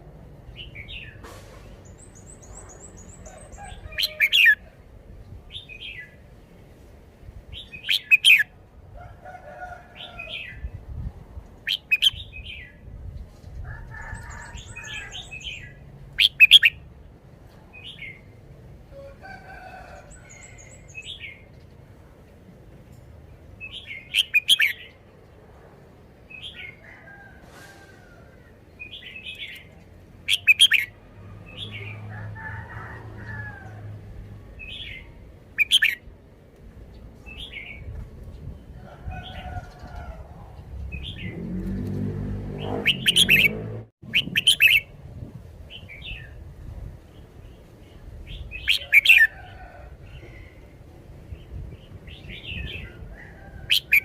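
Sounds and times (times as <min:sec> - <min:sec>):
bird singing chirpy phrases: 0:07.7 - 0:08.5, 0:11.7 - 0:12.8, 0:30.3 - 0:30.9.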